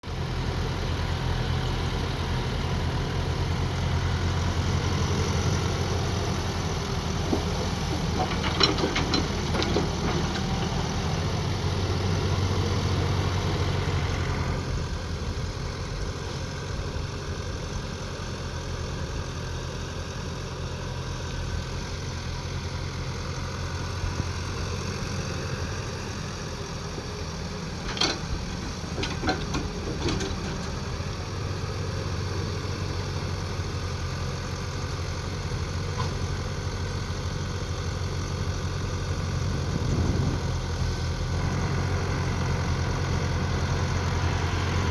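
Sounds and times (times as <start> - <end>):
mini excavator engine running: 0.1 - 44.9.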